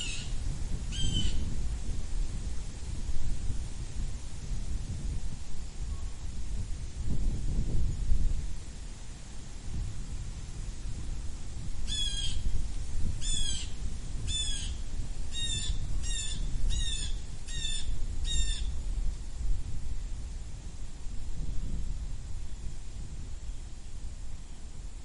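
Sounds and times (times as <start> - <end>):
blue jay calling: 0.0 - 1.4, 11.9 - 12.5, 13.2 - 18.7.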